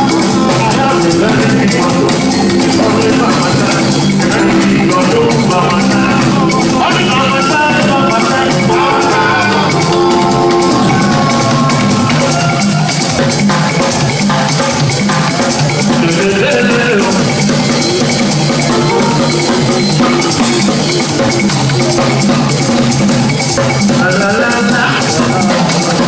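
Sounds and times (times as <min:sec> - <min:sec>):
bass line: 0:00.0 - 0:14.1
drum kit: 0:00.0 - 0:26.0
hand percussion: 0:00.0 - 0:26.0.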